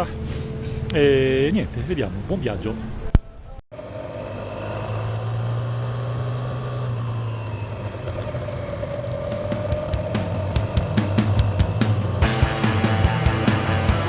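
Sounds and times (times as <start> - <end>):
motorcycle engine running: 3.8 - 14.0.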